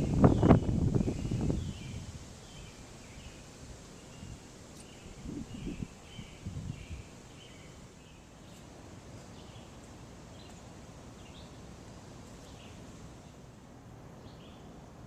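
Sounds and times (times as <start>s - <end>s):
bird chirping: 0.0s - 10.6s, 11.2s - 11.6s, 12.4s - 13.4s
faint hiss and rumble: 0.0s - 15.0s.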